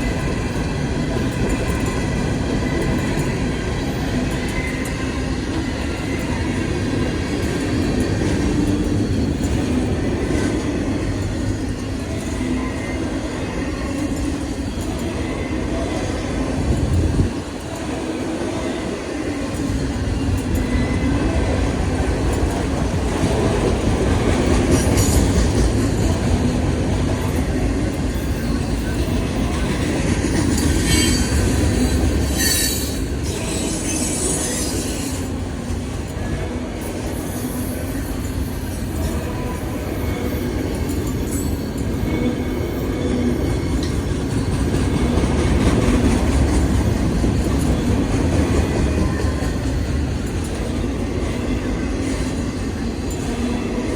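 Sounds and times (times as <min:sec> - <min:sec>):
freight train wheels clattering on rail: 0:00.0 - 0:53.9
wheel squeals: 0:28.1 - 0:35.3.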